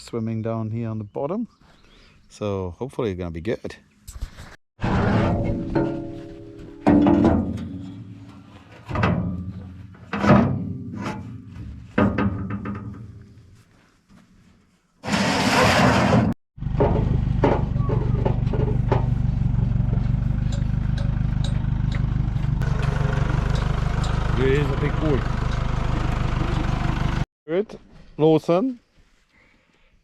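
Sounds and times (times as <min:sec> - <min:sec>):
engine running low: 0:16.6 - 0:27.2.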